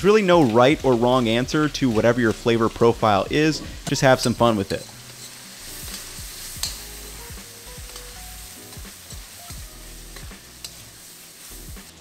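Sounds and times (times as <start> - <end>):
sauce sizzling in a wok: 0.0 - 12.0
metal spoon stirring: 3.8 - 11.5.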